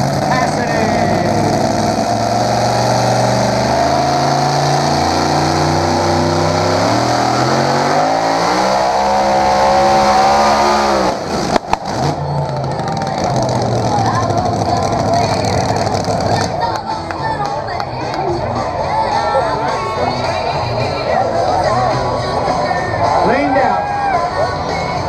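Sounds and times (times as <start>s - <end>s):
engine at full throttle under load: 0.0s - 16.6s
engine popping: 10.5s - 18.0s.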